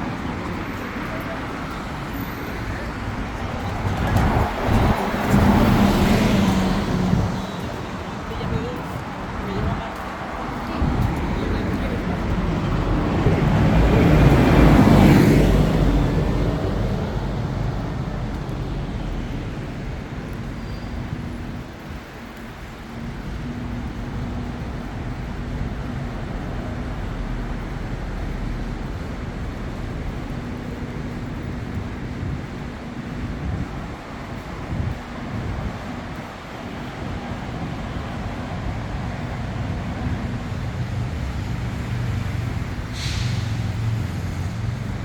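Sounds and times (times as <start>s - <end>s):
steady hum of engines: 0.0s - 45.0s.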